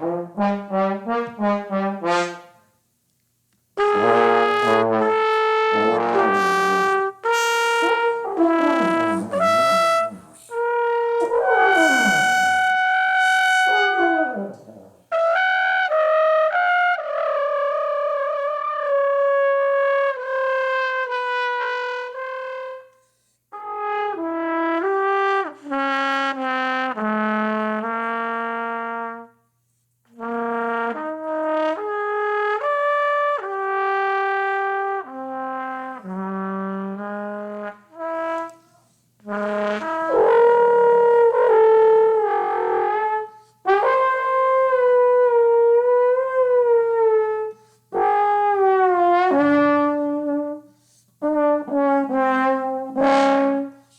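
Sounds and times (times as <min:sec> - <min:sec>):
trombone sliding notes: 0:03.8 - 0:17.8, 0:30.2 - 0:53.8
trumpet improvising: 0:03.8 - 0:17.9, 0:35.1 - 0:53.9.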